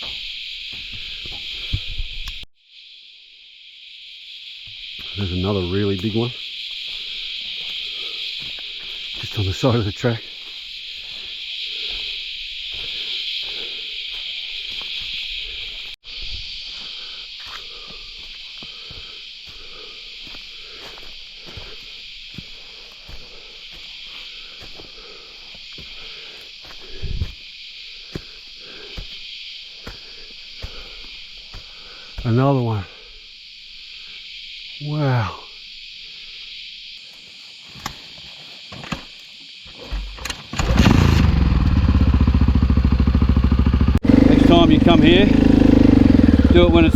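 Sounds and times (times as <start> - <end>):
shrill insect chorus: 0.0 - 46.9
motorcycle engine starting and running: 40.2 - 46.9.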